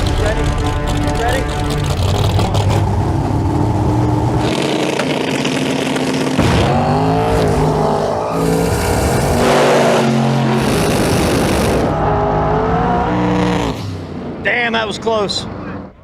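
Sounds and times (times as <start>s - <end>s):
drag car engines revving: 0.0s - 16.0s.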